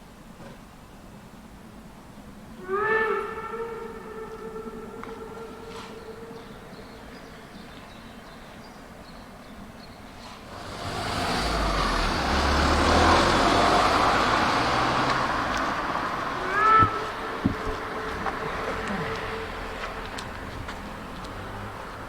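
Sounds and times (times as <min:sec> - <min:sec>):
motor vehicle passing: 0:10.3 - 0:22.0.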